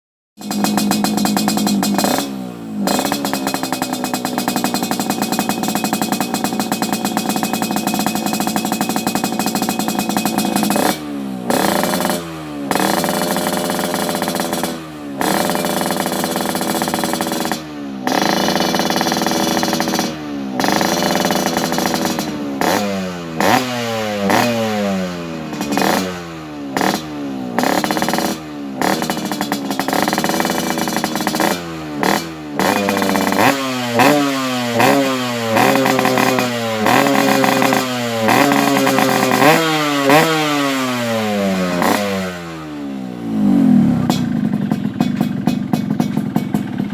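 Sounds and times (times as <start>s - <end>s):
two-stroke motorcycle engine revving: 0.4s - 46.9s.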